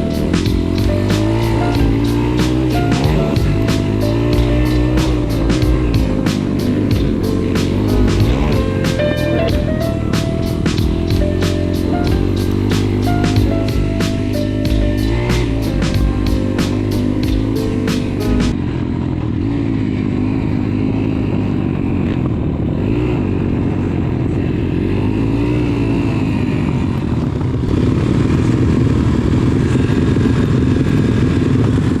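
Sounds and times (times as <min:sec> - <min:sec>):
beat-driven music: 0:00.0 - 0:18.6
small motorcycle engine revving: 0:00.0 - 0:32.0.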